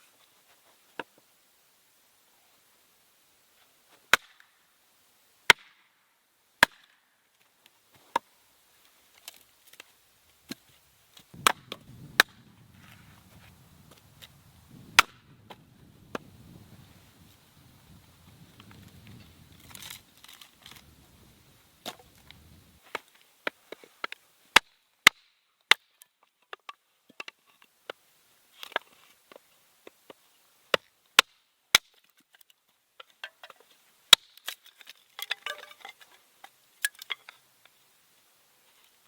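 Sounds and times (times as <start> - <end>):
wood crackling as it splits: 9.1 - 23.2.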